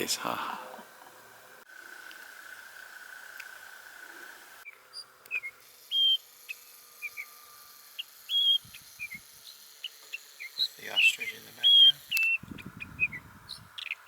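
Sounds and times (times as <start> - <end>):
bird whistling: 4.9 - 7.3, 8.0 - 9.2, 9.8 - 14.0.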